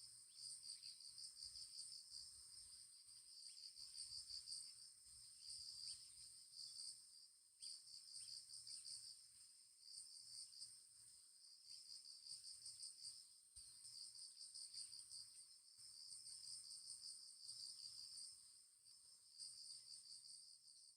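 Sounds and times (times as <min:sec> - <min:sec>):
crickets chirping: 0:00.0 - 0:20.9.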